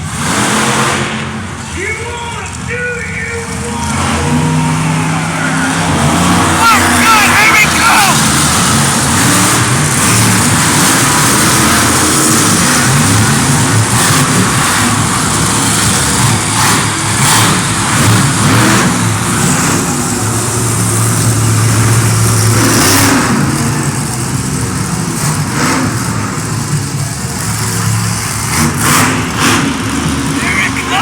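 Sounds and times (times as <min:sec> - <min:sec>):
truck engine revving: 0:00.0 - 0:31.0.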